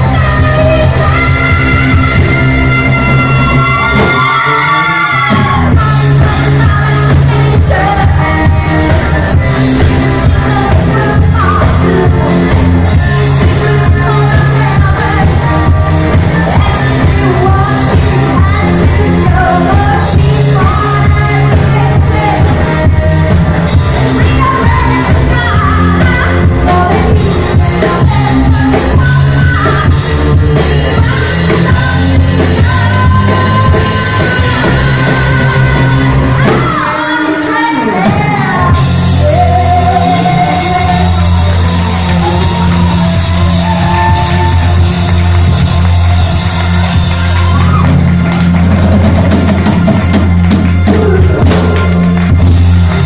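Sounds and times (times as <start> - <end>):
heavy bass: 0.0 - 37.2, 37.8 - 53.0
live band playing disco: 0.0 - 53.0
drum kit hits: 40.3 - 53.0
shouts: 40.6 - 48.0.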